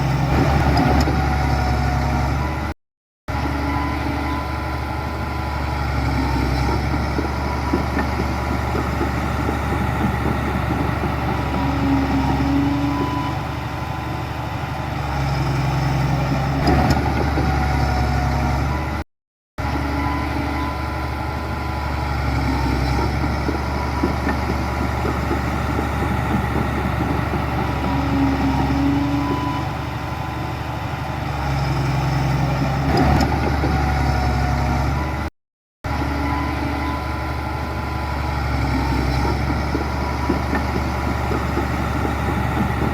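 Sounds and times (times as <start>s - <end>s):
diesel machinery engine running: 0.0s - 19.0s, 19.6s - 42.9s.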